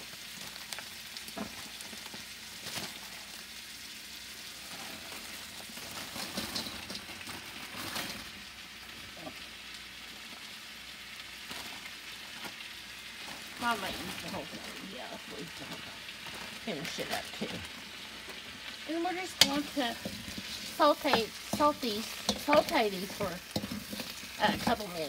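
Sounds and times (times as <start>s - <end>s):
vegetables sizzling in oil: 0.0s - 25.0s
plastic bag crinkling: 4.6s - 8.4s, 11.4s - 25.0s.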